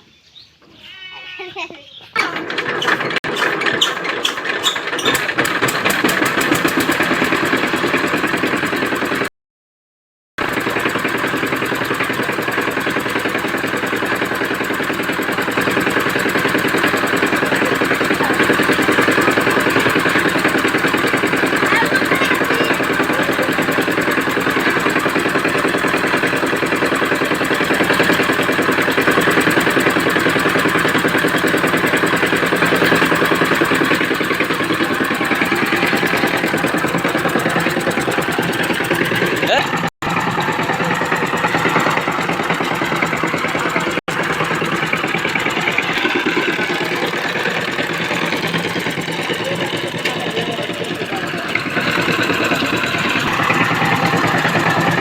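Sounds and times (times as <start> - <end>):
diesel engine chugging: 2.2 - 9.3, 10.4 - 55.0.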